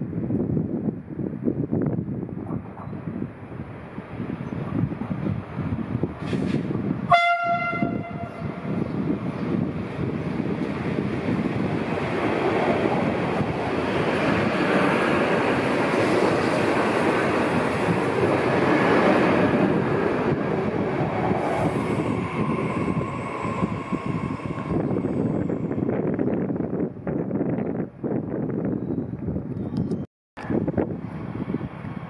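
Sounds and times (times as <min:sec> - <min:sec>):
train wheels rumbling: 0:04.7 - 0:07.2, 0:07.8 - 0:27.0.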